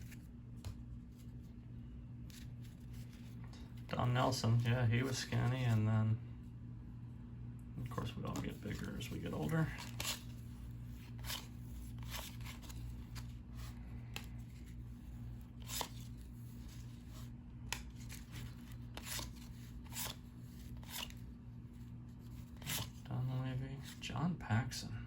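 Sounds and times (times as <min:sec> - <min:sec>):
steady low hum: 0:00.0 - 0:25.0
cards being flipped through: 0:02.2 - 0:03.9, 0:07.9 - 0:23.0.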